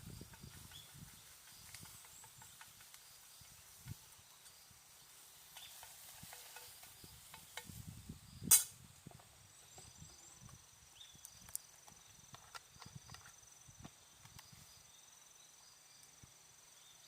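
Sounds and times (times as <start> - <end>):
small taps and scrapes: 0.1 - 4.6, 5.5 - 7.9, 11.2 - 14.6
loud metallic clank: 8.5 - 8.8.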